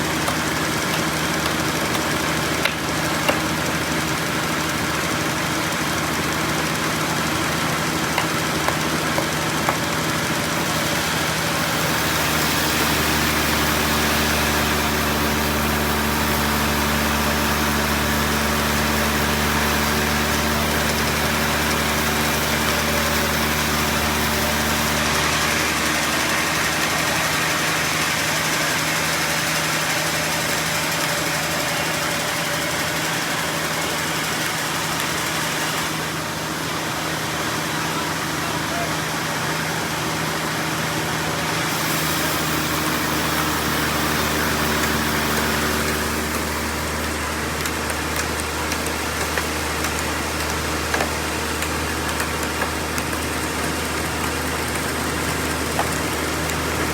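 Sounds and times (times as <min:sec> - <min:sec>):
sawmill engine running: 0:00.0 - 0:56.9
saw hissing through wood: 0:07.4 - 0:36.8, 0:37.4 - 0:52.8.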